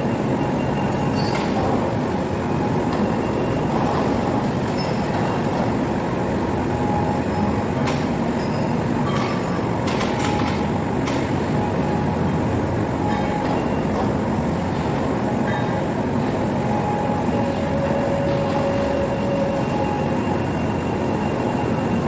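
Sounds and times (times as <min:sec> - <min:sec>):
heavy machinery rumbling: 0:01.3 - 0:21.9.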